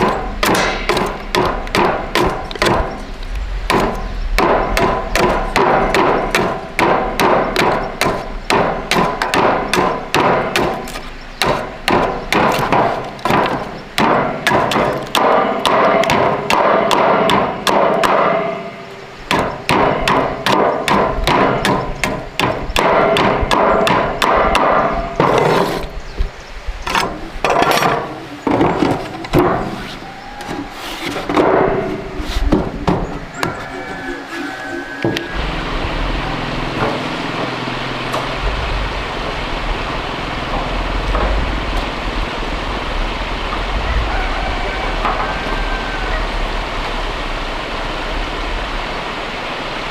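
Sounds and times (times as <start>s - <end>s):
hammer striking: 0.0s - 3.0s, 3.7s - 25.6s, 31.3s - 33.6s.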